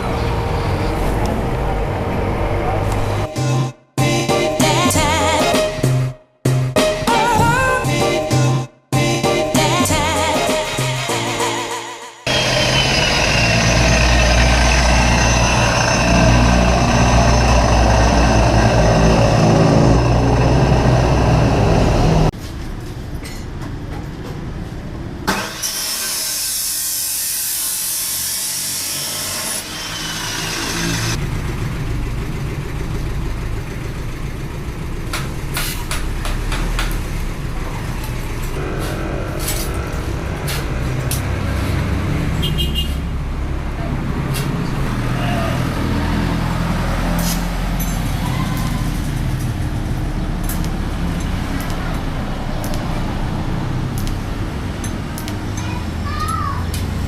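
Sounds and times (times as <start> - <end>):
motorcycle engine rumbling: 12.3 - 23.2
sharp metallic clicks and knocks: 35.1 - 37.1.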